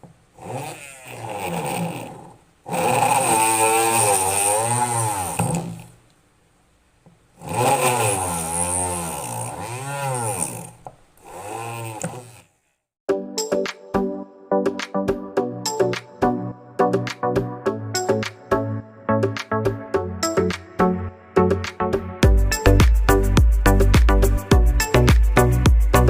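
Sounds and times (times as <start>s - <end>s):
drill motor running: 0.4s - 6.0s, 7.4s - 12.6s
music: 13.1s - 26.0s.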